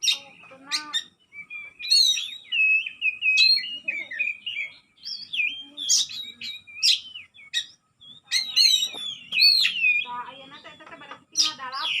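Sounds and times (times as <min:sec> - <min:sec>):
songbird singing whistled phrases: 0:00.0 - 0:12.0.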